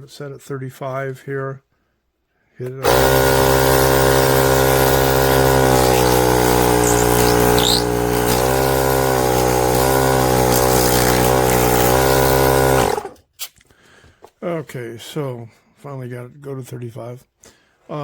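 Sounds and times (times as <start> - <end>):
small air compressor running: 2.8 - 13.2.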